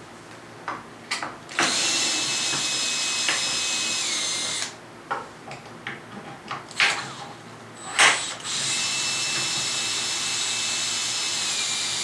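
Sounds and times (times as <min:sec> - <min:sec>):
power drill motor whining: 0:01.6 - 0:04.8, 0:06.7 - 0:12.0.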